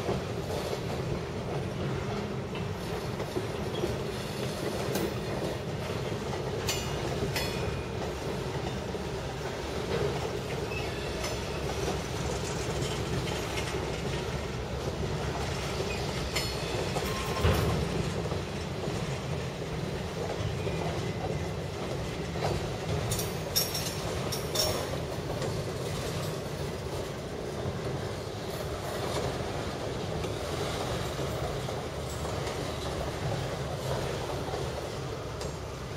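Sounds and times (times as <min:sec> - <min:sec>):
train cars rumbling past: 0:00.0 - 0:35.9
train clank: 0:00.0 - 0:35.9
wheels clacking over rail joints: 0:00.0 - 0:35.9
high wheel squeals: 0:15.8 - 0:17.7.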